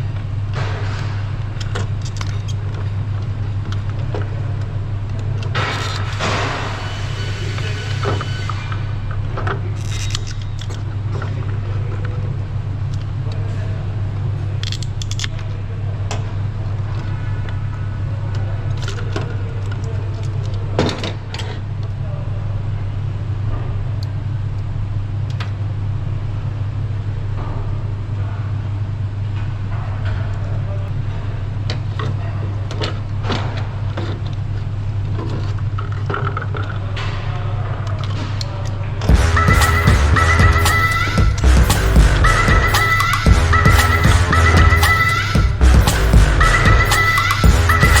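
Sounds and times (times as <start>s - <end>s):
steady low hum: 39.1s - 48.0s
steady low rumble: 39.1s - 48.0s.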